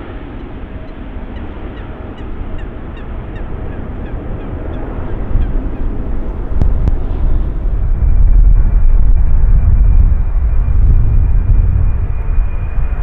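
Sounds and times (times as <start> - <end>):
jet engine rumble: 0.0 - 13.0
geese honking: 0.2 - 7.8.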